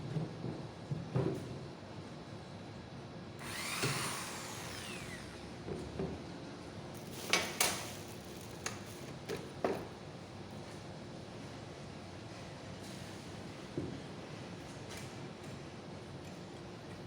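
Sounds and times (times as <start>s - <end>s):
electric drill boring cardboard: 3.4s - 5.7s.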